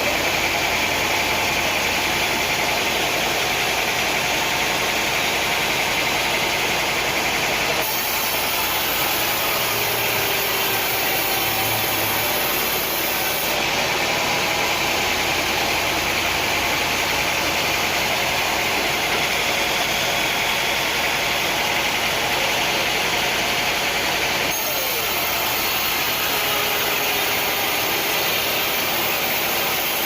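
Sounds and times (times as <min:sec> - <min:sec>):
sawmill machinery drone with hiss: 0:00.0 - 0:30.0.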